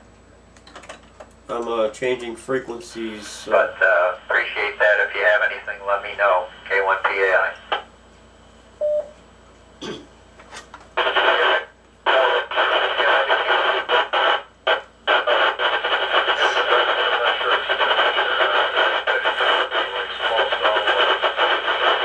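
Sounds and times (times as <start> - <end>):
radio static hiss: 1.8 - 7.9, 10.9 - 22.0
radio beep: 8.8 - 9.1, 15.1 - 22.0.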